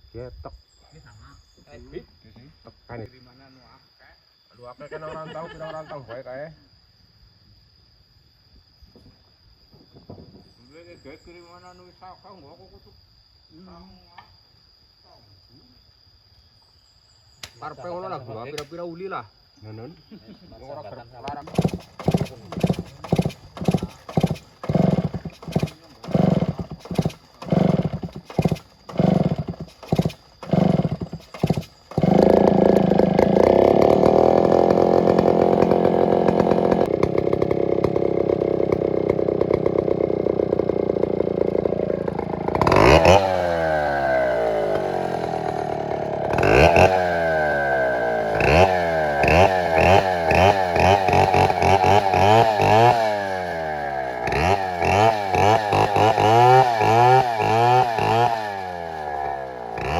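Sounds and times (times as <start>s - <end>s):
chainsaw running and revving: 21.4s - 59.9s.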